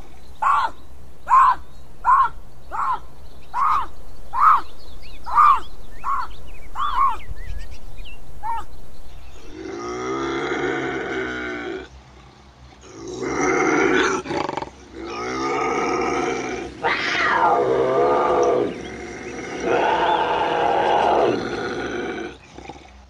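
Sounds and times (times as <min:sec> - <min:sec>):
cougar rasping calls: 0:09.4 - 0:23.0.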